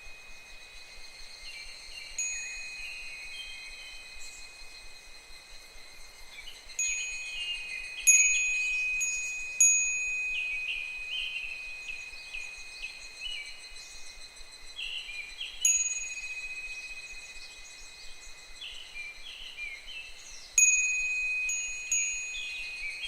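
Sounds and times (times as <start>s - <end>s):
cicadas calling: 0.0s - 23.0s
wind chime ringing: 2.1s - 4.6s, 6.8s - 13.7s, 15.6s - 18.1s, 20.6s - 23.0s.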